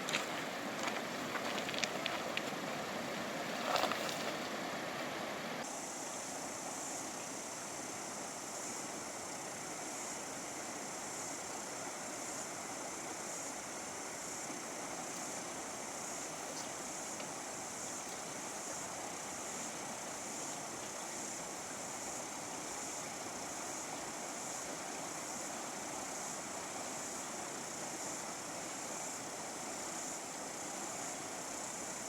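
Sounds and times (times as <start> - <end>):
fast river rushing: 0.0 - 5.6.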